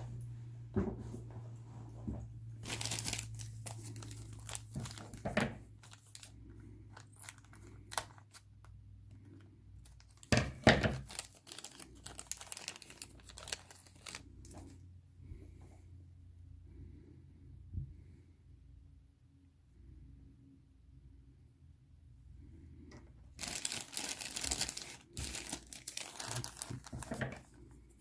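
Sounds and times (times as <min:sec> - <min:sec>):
plastic bags crinkling and tearing: 0:02.6 - 0:08.5, 0:09.8 - 0:14.8, 0:23.4 - 0:27.8.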